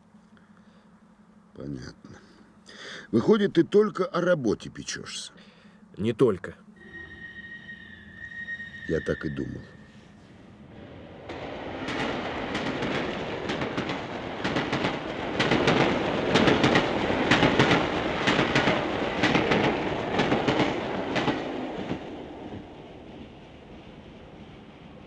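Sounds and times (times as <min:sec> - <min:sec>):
train rumble: 0:01.0 - 0:25.0
wheels clacking over rail joints: 0:11.1 - 0:25.0.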